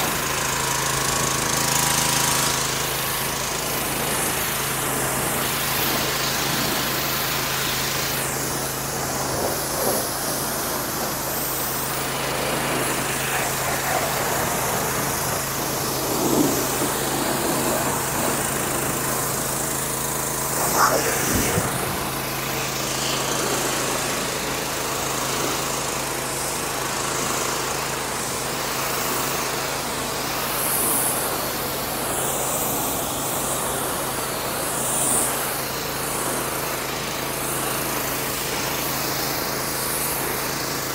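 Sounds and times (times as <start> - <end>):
pressure washer spraying: 0.0 - 26.0.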